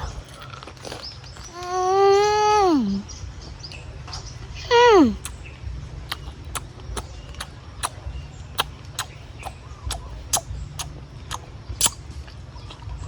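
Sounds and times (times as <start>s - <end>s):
nuts crunching while eaten: 0.0s - 2.4s, 6.1s - 8.0s, 8.6s - 12.0s.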